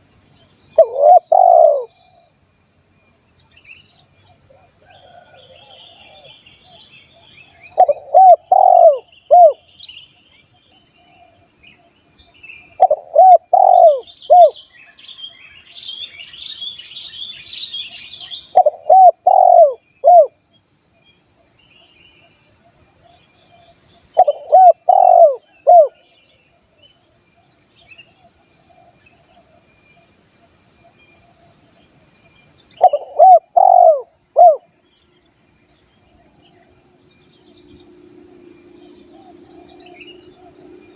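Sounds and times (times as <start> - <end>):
dove cooing: 0.8 - 2.2, 7.8 - 9.6, 12.7 - 14.6, 18.5 - 20.4, 24.2 - 26.0, 32.8 - 34.7
high-pitched insect drone: 27.1 - 40.9.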